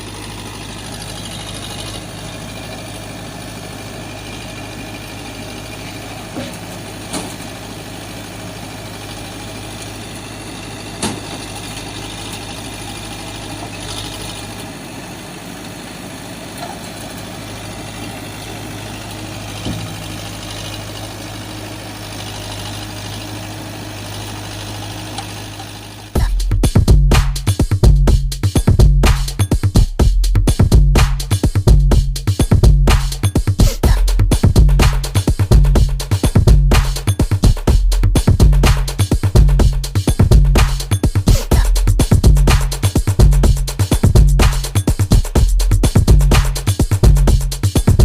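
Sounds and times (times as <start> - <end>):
engine idling: 0.0 - 48.0
short knocks: 19.6 - 20.3.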